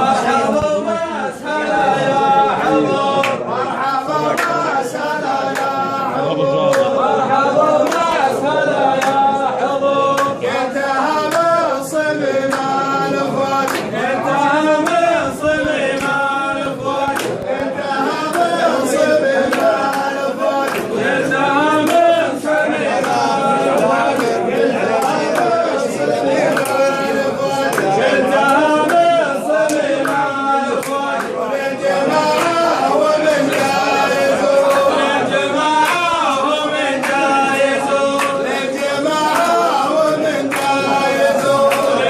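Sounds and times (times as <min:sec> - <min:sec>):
men chanting in unison: 0:00.0 - 0:42.0.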